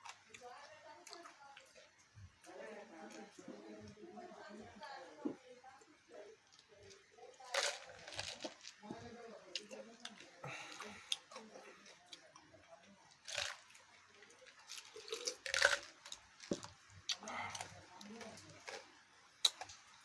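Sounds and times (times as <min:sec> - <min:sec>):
chewing and crunching food: 0:00.0 - 0:04.5, 0:06.4 - 0:20.0
people talking: 0:00.3 - 0:01.8, 0:02.5 - 0:13.2, 0:17.2 - 0:18.8.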